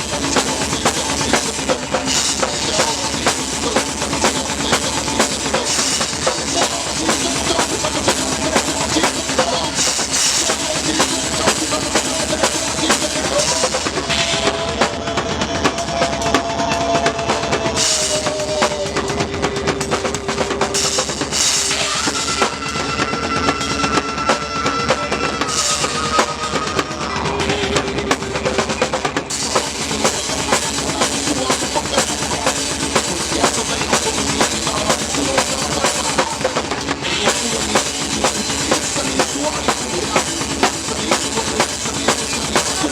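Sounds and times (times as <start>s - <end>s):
rock band playing live: 0.0s - 42.9s.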